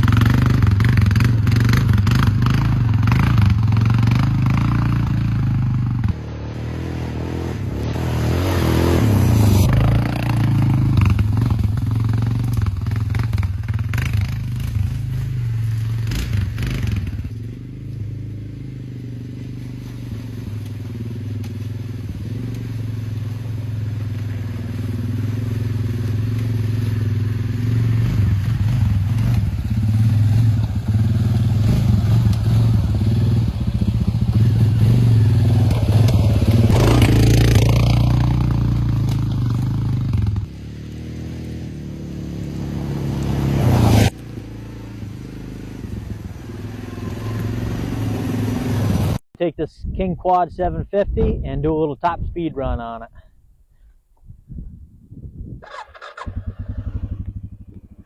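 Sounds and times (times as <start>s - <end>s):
atv engine running: 0.0s - 49.2s, 55.6s - 58.0s.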